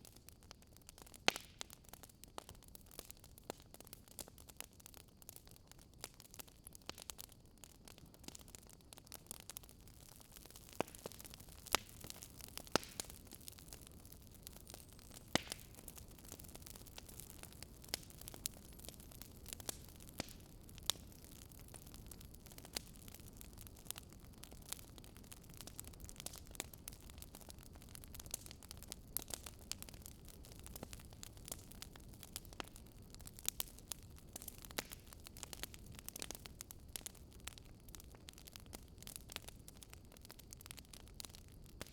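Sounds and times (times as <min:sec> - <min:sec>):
wood fire crackling and popping: 0:00.0 - 0:41.9
low rush of flames: 0:09.2 - 0:38.0.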